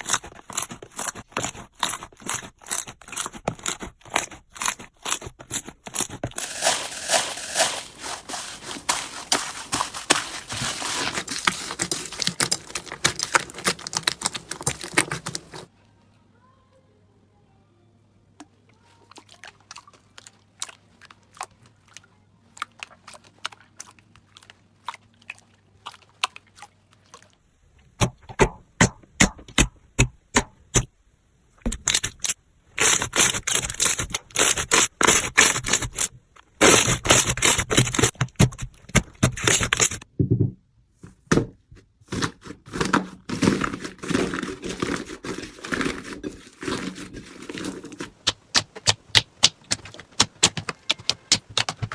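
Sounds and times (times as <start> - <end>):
slime crackling and clicking: 9.1 - 15.7, 47.5 - 51.9.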